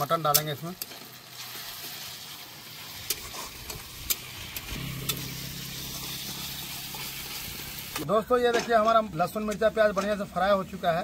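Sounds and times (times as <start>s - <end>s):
onion sizzling in hot oil: 0.0s - 8.1s
low steady hum: 3.8s - 8.1s.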